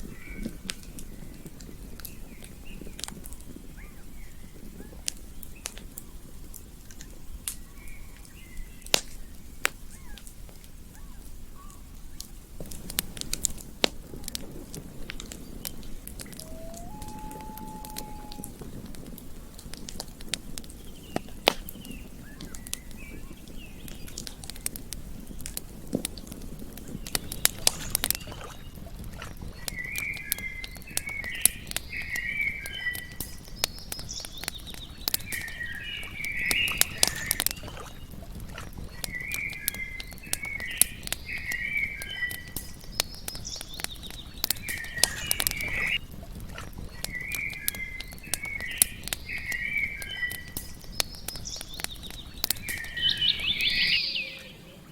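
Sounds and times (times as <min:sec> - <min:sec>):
campfire crackling and popping: 0:00.0 - 0:54.9
chirping animal call: 0:16.2 - 0:18.6, 0:52.7 - 0:54.9.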